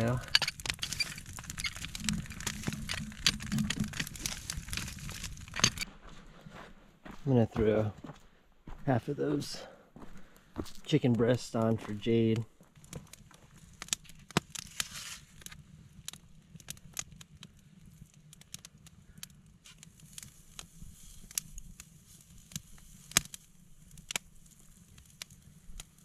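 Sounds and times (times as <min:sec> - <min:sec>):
sharp pops from fire: 0:00.0 - 0:05.9, 0:12.6 - 0:26.0
campfire crackling: 0:00.0 - 0:26.0.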